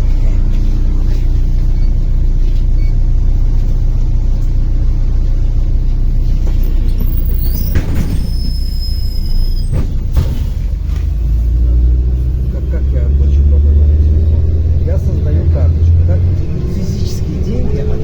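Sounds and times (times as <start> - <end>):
bus engine drone: 0.0 - 18.0
thin high squeal: 6.6 - 9.9.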